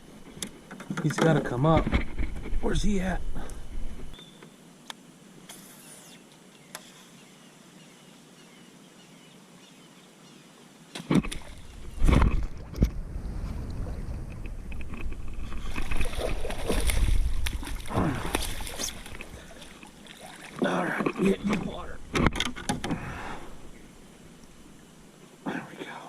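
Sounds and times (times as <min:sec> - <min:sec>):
water splashing around kayak: 0:10.9 - 0:25.1.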